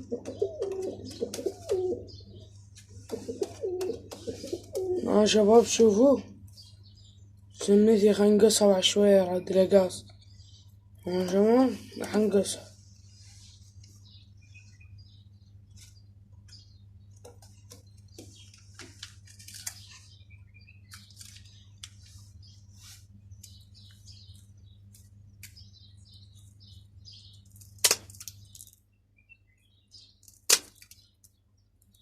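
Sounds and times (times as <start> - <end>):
scissors snipping feather: 27.6 - 28.3, 30.2 - 31.0.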